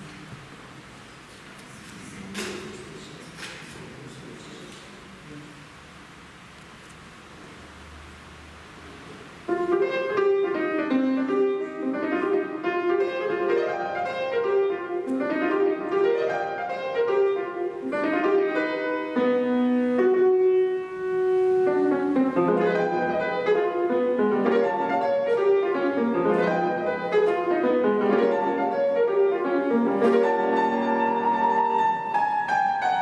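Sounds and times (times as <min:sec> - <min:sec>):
solo piano piece: 0:07.5 - 0:33.0.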